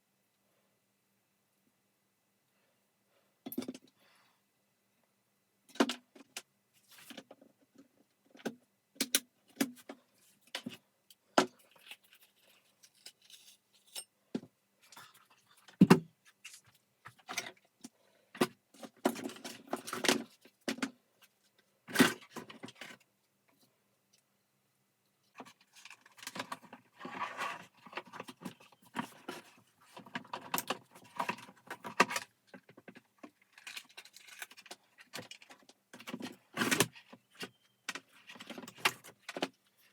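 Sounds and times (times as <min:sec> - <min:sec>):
plastic parts clicking and knocking: 0:05.7 - 0:21.0, 0:25.3 - 0:39.9.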